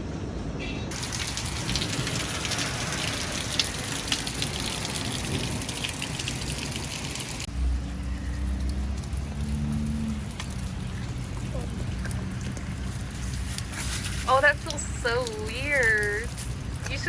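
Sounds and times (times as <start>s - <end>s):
hail falling hard: 0.9s - 7.5s.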